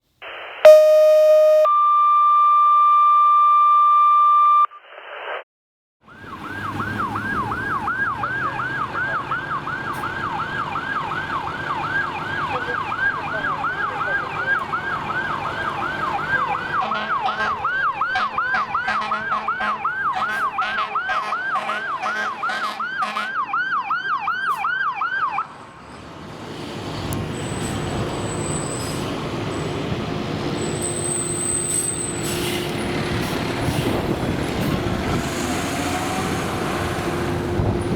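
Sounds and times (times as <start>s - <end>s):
steady electronic tone: 0.6s - 1.7s
fire engine siren yelp: 6.0s - 25.6s, 27.3s - 37.9s
heavy truck engine running: 26.6s - 37.9s.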